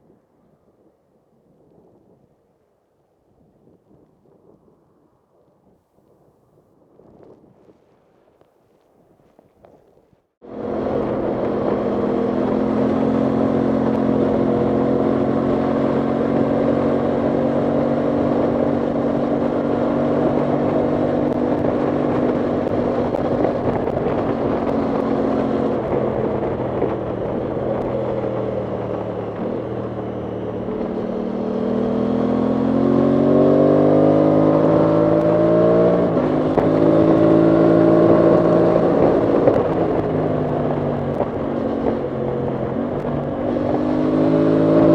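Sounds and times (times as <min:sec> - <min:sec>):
motorcycle engine revving: 0:10.4 - 0:44.9.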